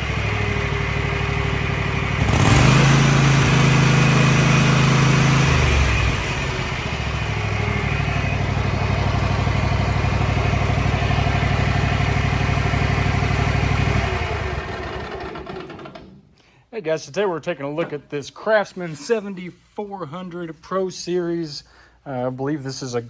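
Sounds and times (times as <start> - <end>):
garden tractor engine running: 0.0 - 16.2.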